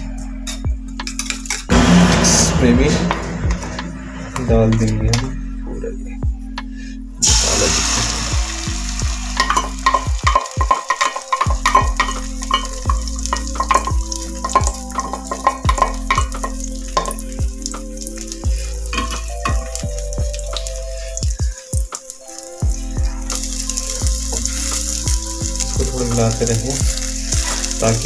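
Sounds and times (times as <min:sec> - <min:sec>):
food sizzling in hot oil: 0:07.2 - 0:28.0.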